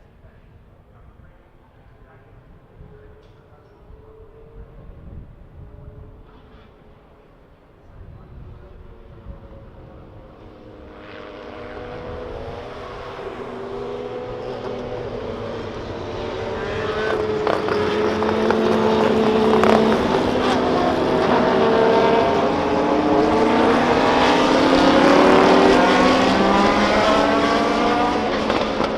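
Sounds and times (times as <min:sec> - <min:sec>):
racing car engine approaching: 0:08.8 - 0:28.9.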